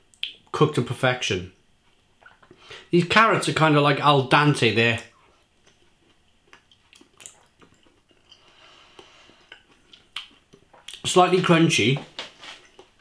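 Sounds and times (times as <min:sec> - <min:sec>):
chewing crunchy carrots: 0:05.0 - 0:11.1.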